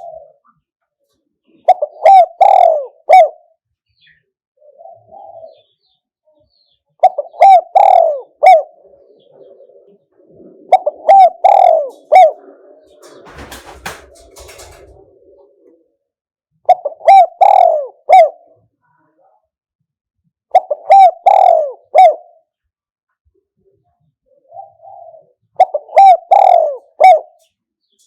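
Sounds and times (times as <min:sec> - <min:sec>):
dove cooing: 0:00.0 - 0:00.4, 0:01.4 - 0:03.5, 0:04.6 - 0:05.8, 0:07.0 - 0:16.1, 0:16.7 - 0:18.6, 0:20.5 - 0:22.4, 0:24.3 - 0:27.5
brief rustling: 0:12.9 - 0:15.1.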